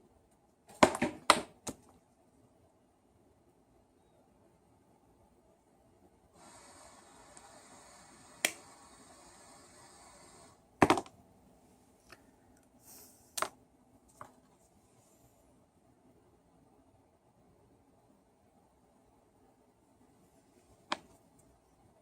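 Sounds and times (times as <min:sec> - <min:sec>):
faint rustling hiss: 0:06.1 - 0:22.0.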